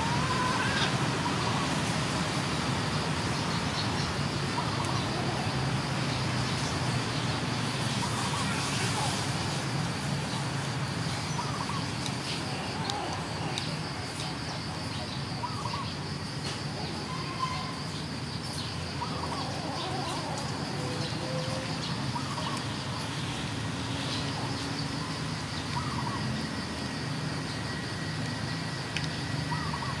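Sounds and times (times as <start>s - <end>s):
bird calling: 0.0s - 1.8s, 11.1s - 13.8s, 15.4s - 16.0s, 18.6s - 23.2s, 24.2s - 26.4s, 29.1s - 30.0s.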